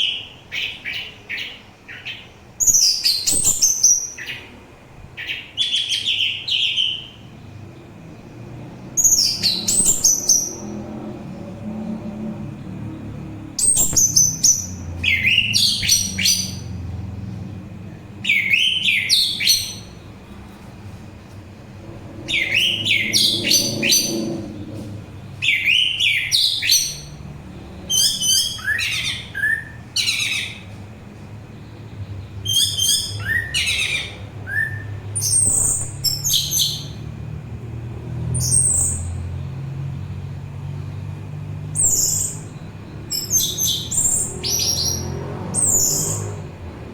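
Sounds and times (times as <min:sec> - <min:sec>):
thrush singing: 0:09.0 - 0:29.9
low steady hum: 0:09.6 - 0:26.3.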